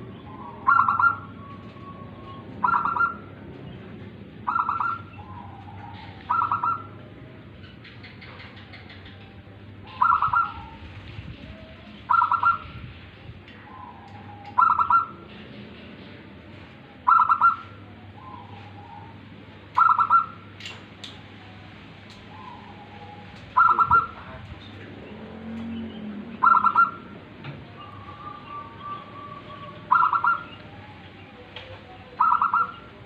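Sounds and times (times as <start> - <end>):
dove cooing: 0.2 - 3.3, 4.4 - 7.0, 8.2 - 12.7, 13.6 - 15.2, 17.0 - 20.4, 22.3 - 24.4, 26.4 - 33.0.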